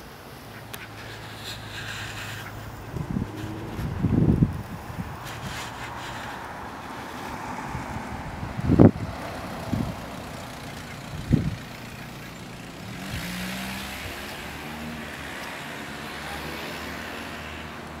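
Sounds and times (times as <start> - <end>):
vehicle engine hum: 0.0 - 18.0
tyre hiss: 0.7 - 8.0.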